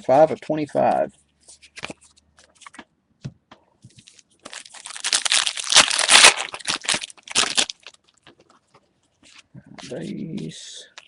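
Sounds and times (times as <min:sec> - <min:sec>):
wrapper tearing and crinkling: 0:04.0 - 0:08.2.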